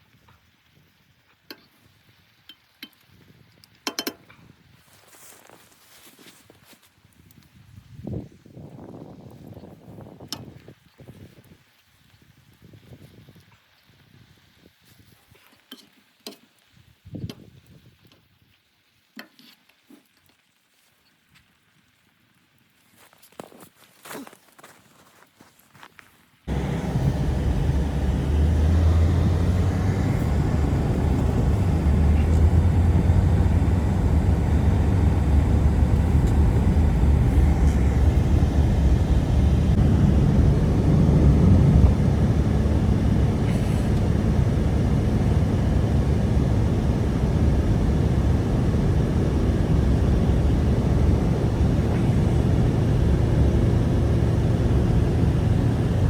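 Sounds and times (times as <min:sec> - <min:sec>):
strong wind roaring: 0:26.5 - 0:56.0.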